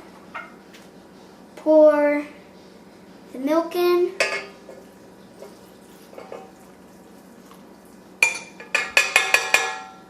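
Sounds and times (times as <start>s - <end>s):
dishes and utensils clinking: 4.2s - 4.8s, 5.4s - 6.6s, 8.2s - 10.0s.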